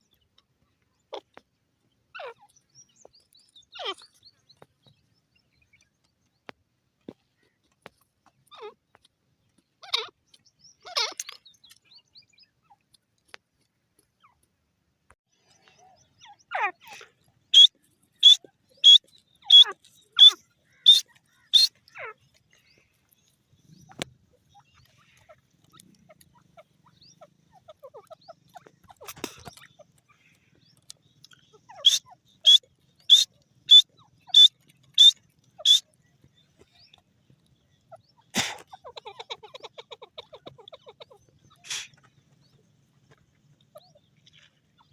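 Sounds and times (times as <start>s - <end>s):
francolin calling: 15.8s - 22.8s, 31.0s - 37.0s.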